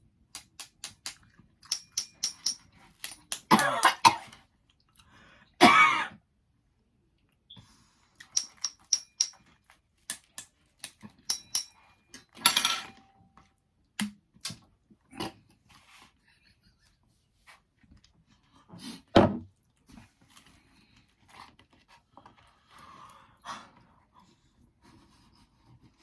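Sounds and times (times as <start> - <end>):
short cough-like bursts: 3.5 - 4.3, 5.6 - 6.2.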